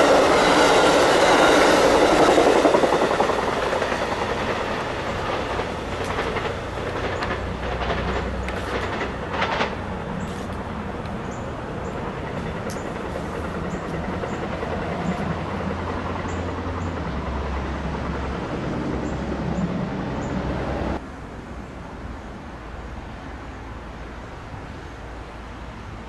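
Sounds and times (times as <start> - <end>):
passenger train rumbling past: 0.0 - 26.0.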